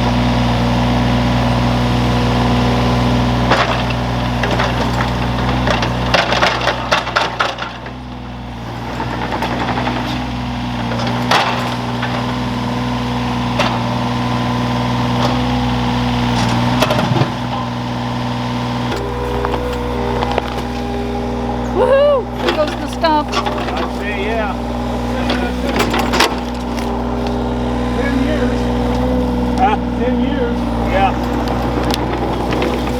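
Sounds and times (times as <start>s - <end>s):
excavator diesel engine running: 0.0s - 32.9s
wood cracking and snapping: 19.0s - 21.6s.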